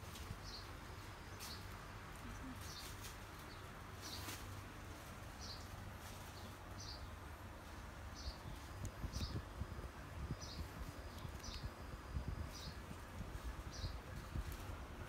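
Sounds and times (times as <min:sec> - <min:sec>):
steady low hum: 0:00.0 - 0:15.0
bird chirping: 0:05.4 - 0:14.5.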